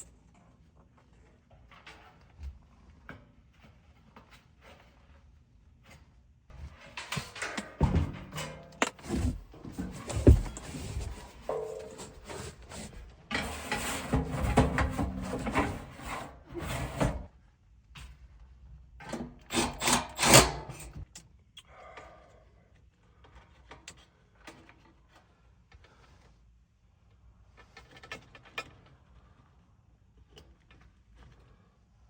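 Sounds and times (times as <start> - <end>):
hands and tools scraping: 7.2 - 17.3.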